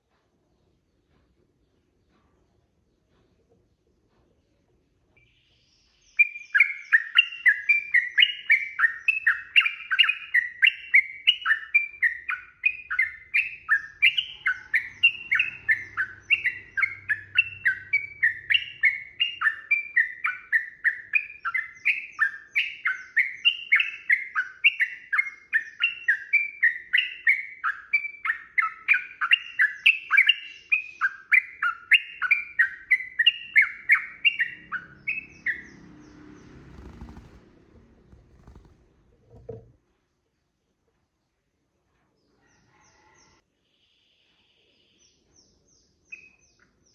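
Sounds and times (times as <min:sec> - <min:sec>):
bird singing rapid chirps: 0:05.2 - 0:38.9.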